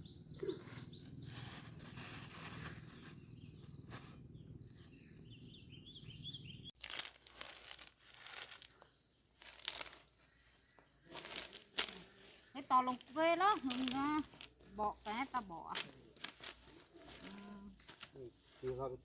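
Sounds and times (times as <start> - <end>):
quick bird chirps: 0.0 - 1.8, 2.8 - 6.8
rustling crunching strokes: 0.6 - 4.9, 6.7 - 19.0.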